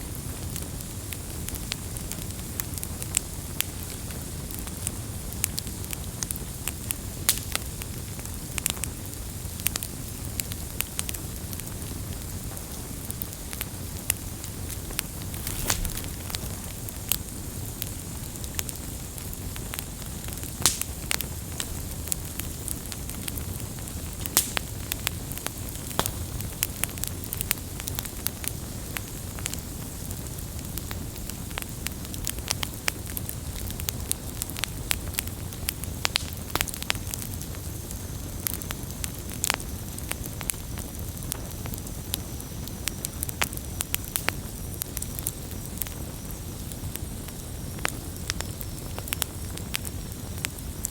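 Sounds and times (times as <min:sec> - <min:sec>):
fire crackling and popping: 0:00.0 - 0:50.9
campfire flames rushing: 0:10.0 - 0:50.9.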